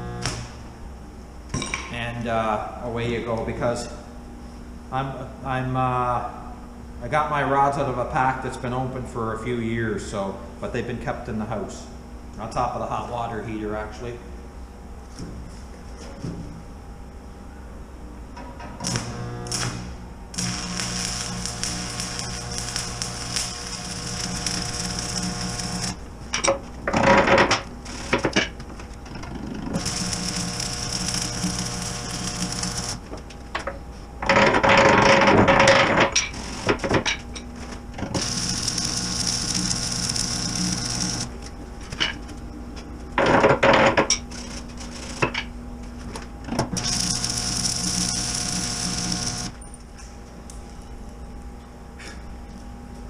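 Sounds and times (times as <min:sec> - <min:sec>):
welding arc crackling: 0:00.0 - 0:00.7, 0:18.8 - 0:28.6, 0:29.6 - 0:33.1, 0:34.4 - 0:36.9, 0:38.1 - 0:41.5, 0:44.1 - 0:45.3, 0:46.8 - 0:49.6.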